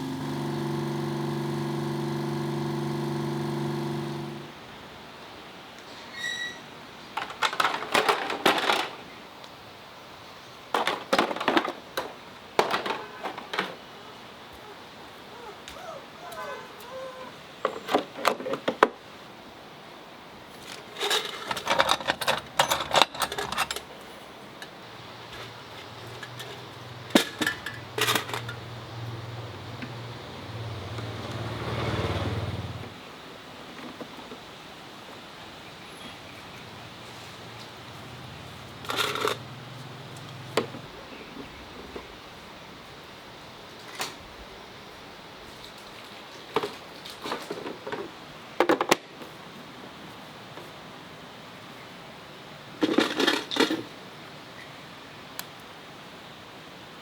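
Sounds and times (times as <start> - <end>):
low mechanical hum: 0.0 - 5.3
metal objects clattering: 7.2 - 9.0, 20.6 - 24.0, 25.3 - 28.6, 38.8 - 39.4, 52.8 - 53.9.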